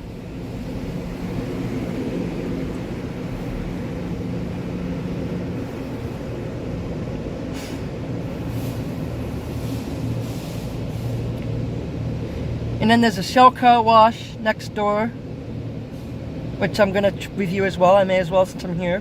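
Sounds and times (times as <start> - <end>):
car wash equipment droning: 0.0 - 19.0
short hisses: 7.5 - 11.4.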